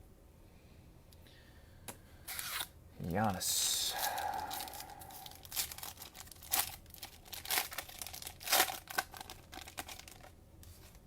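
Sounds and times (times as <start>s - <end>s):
cellophane wrapper crinkling and tearing: 3.9s - 11.0s.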